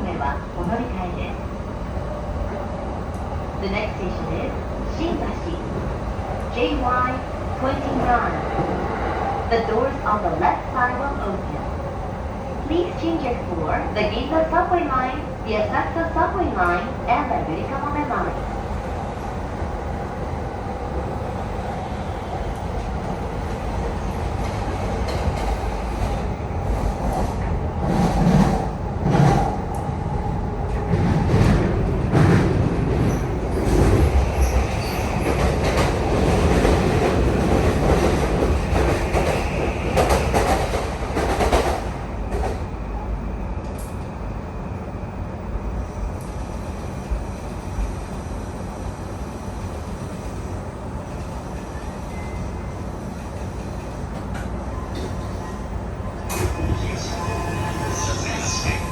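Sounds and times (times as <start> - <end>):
train wheels running on rails: 22.0 - 30.0, 30.7 - 42.7.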